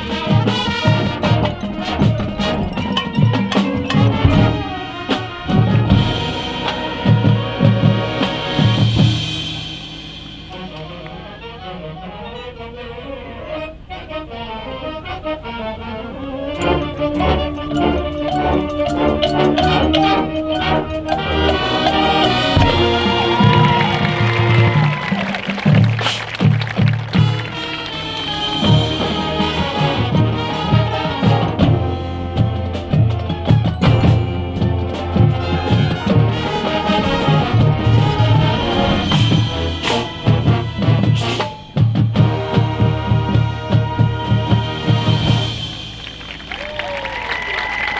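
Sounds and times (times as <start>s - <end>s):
drumline percussion: 0.0s - 47.9s
marching band playing reedy notes: 0.0s - 47.9s
low pulsing bass line: 14.4s - 24.7s.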